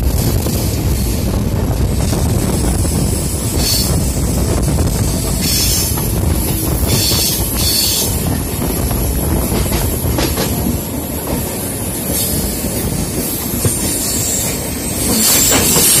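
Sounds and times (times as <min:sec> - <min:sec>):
passing train coaches: 0:00.0 - 0:16.0
train wheels rumbling on rails: 0:00.0 - 0:16.0.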